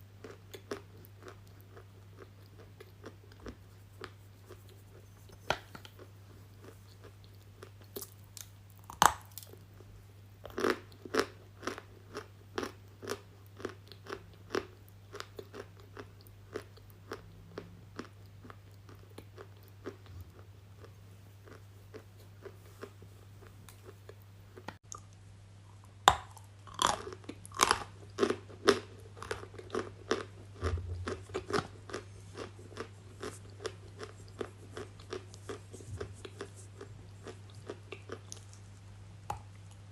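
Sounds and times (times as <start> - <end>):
faint low hum: 0.0 - 39.9
crunchy bites and chewing: 5.4 - 9.7, 10.4 - 24.0, 26.0 - 38.6.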